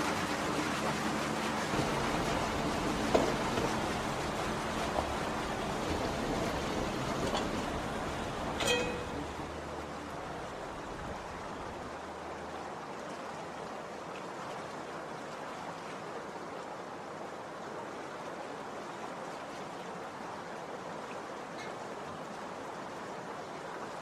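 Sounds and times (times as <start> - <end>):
low engine hum: 0.0 - 12.9.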